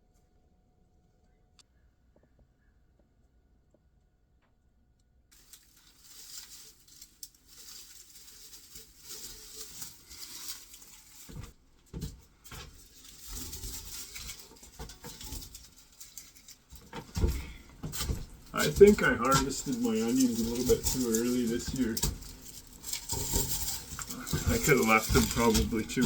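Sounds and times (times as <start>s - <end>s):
dry garlic skins rustling: 5.3s - 26.0s.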